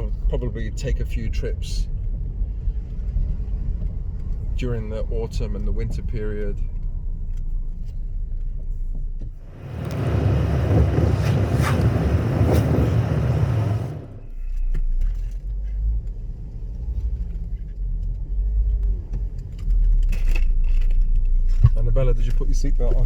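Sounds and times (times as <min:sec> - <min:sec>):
car cabin rumble: 0:02.9 - 0:18.0
rushing noise: 0:09.5 - 0:14.2.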